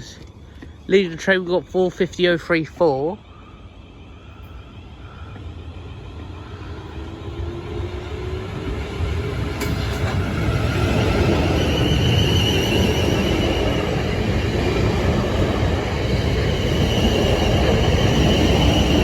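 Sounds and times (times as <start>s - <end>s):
train wheels rumbling on rail: 4.4s - 19.0s.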